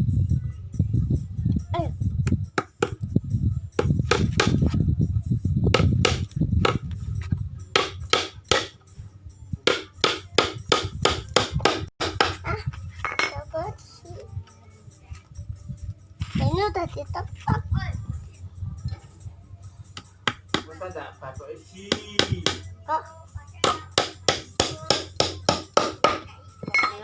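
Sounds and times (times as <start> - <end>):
hammer tapping: 5.8 - 6.8, 7.8 - 8.7, 9.7 - 12.4, 20.0 - 20.7, 21.9 - 22.7, 23.6 - 27.0.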